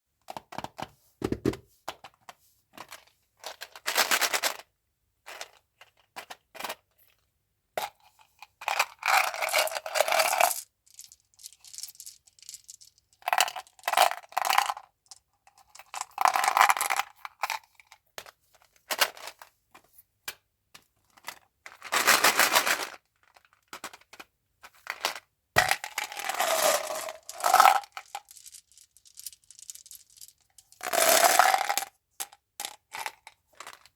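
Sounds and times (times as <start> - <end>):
plastic wrappers crinkling: 25.9 - 30.4.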